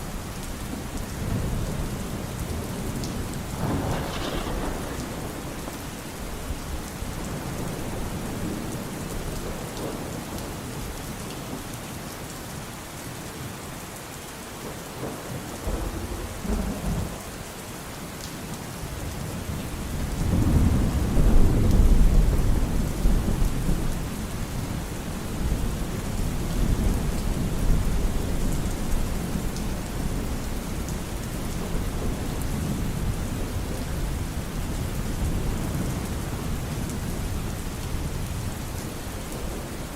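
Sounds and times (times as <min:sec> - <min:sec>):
steady rain: 0:00.0 - 0:39.9
thunder rumbling: 0:00.7 - 0:10.1, 0:15.0 - 0:17.9, 0:19.9 - 0:24.1.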